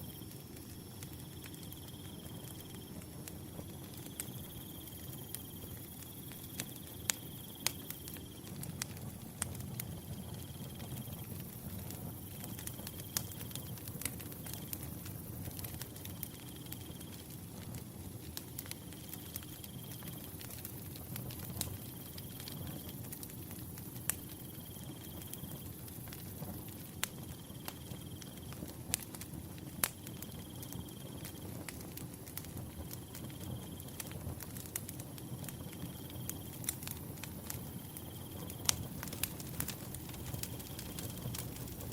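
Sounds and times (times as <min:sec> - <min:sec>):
firewood crackling and popping: 0:00.0 - 0:41.9
cricket trilling: 0:38.0 - 0:41.9
low rush of flame: 0:38.4 - 0:41.9.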